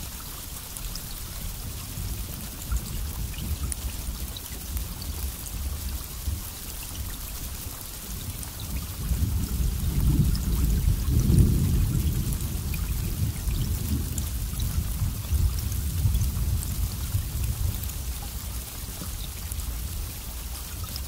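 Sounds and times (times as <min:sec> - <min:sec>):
steady rain: 0:00.0 - 0:21.0
low thunder roll: 0:09.1 - 0:17.8.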